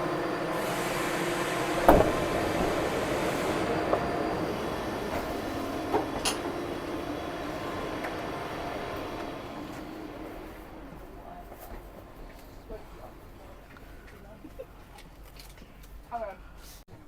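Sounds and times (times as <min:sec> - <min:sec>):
electric train humming: 0:00.0 - 0:14.9.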